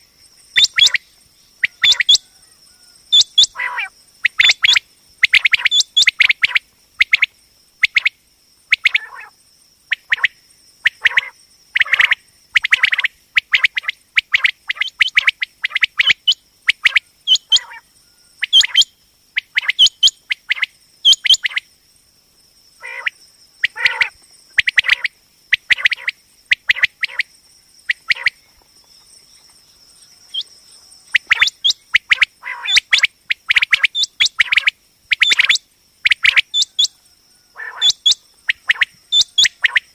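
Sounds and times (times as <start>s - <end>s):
quail calling: 0.6s - 1.0s, 1.6s - 7.2s, 8.8s - 9.3s, 10.9s - 17.8s, 18.4s - 21.6s, 22.8s - 27.3s, 27.9s - 28.4s, 31.1s - 39.9s.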